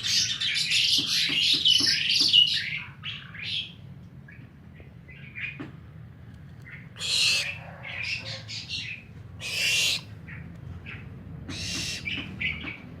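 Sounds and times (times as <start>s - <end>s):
owl chittering calls: 6.7s - 12.8s
barn owl screeching: 7.0s - 10.1s, 11.5s - 12.2s.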